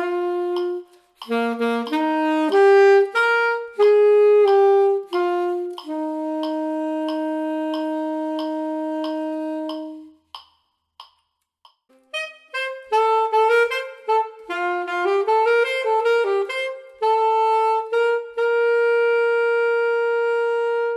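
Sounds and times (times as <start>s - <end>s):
saxophone playing: 0.0s - 10.3s, 11.9s - 20.9s
metronome clicks: 0.0s - 11.9s.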